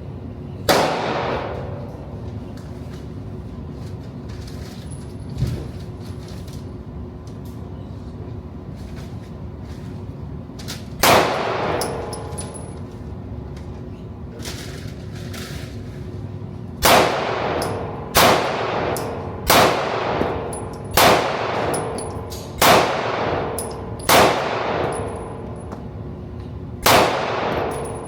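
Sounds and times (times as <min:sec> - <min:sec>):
handgun shots: 0:16.8 - 0:25.1, 0:26.8 - 0:28.0.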